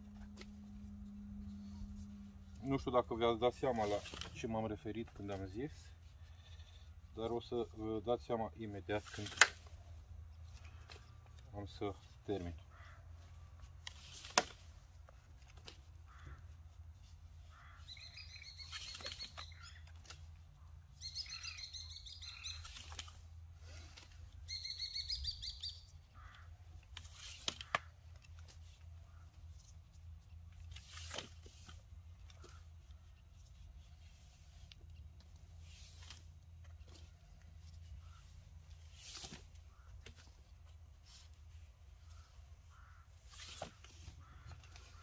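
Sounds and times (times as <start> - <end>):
songbird twittering: 17.6 - 19.8, 21.0 - 22.8, 24.5 - 26.4.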